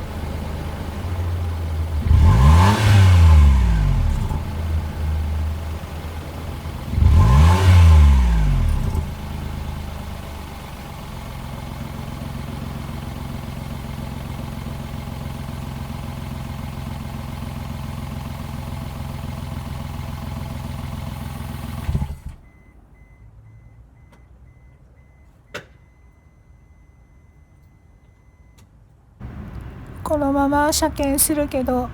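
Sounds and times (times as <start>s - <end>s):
car engine revving and idling: 0.0s - 22.5s, 29.2s - 31.9s
faint high beep: 22.5s - 28.6s.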